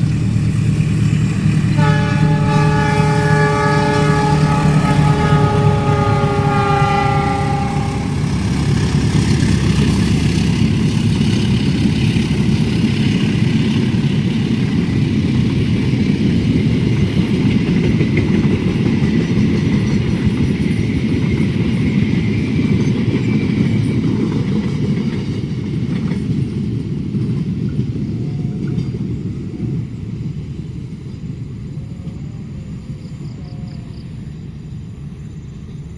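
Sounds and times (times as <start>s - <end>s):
train rumbling past: 0.0s - 35.9s
train horn: 1.6s - 8.6s.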